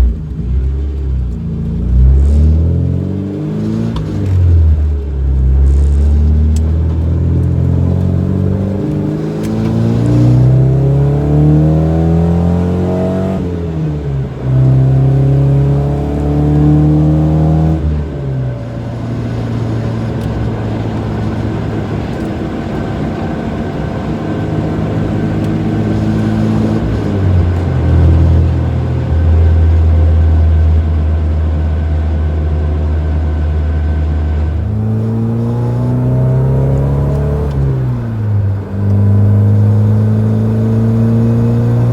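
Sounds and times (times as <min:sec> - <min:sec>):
car engine revving from cabin: 0:00.0 - 0:41.9.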